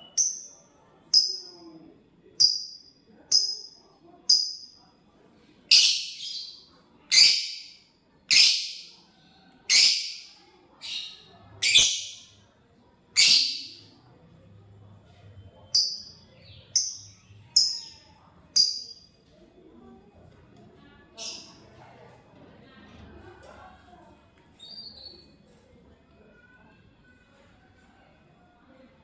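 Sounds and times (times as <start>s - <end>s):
lovebird chirps: 0.0s - 1.6s, 2.4s - 4.8s, 5.7s - 9.0s, 9.7s - 12.4s, 13.2s - 14.0s, 15.6s - 19.1s
lovebird shrill calls: 7.1s - 7.7s, 13.2s - 13.8s.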